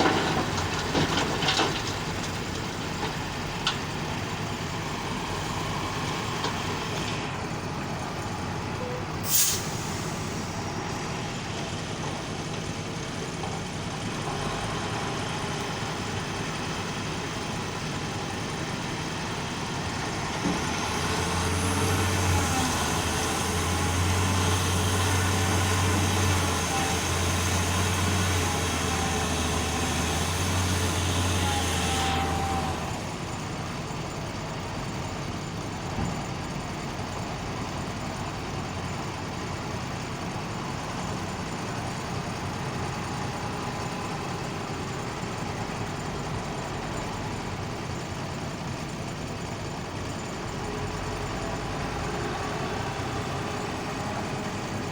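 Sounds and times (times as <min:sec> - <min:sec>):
diesel engine running: 0:00.0 - 0:54.9
sharp hiss: 0:09.2 - 0:10.6.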